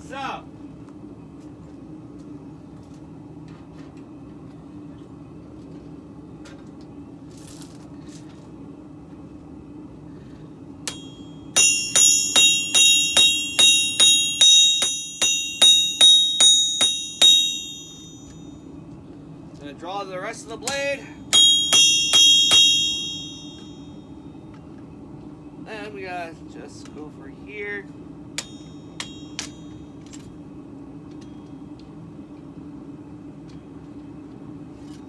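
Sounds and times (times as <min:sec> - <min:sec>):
low hum: 0:10.8 - 0:19.5, 0:20.6 - 0:25.6, 0:28.0 - 0:31.6
hammer ringing on anvil: 0:10.9 - 0:18.6, 0:20.7 - 0:24.0, 0:28.4 - 0:29.9.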